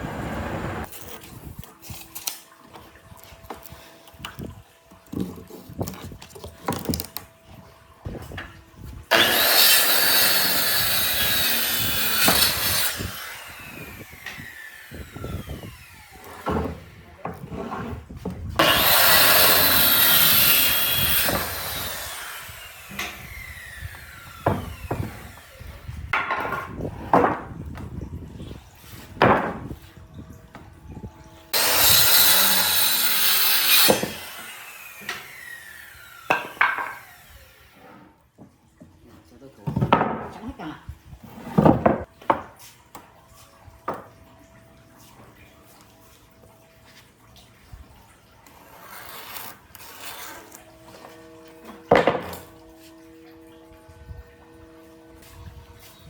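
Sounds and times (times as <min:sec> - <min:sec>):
power saw cutting wood: 0:00.0 - 0:01.3, 0:09.1 - 0:26.1, 0:31.5 - 0:38.2, 0:48.5 - 0:56.0
saw motor spinning down: 0:09.1 - 0:17.0, 0:18.6 - 0:25.9, 0:31.6 - 0:37.8.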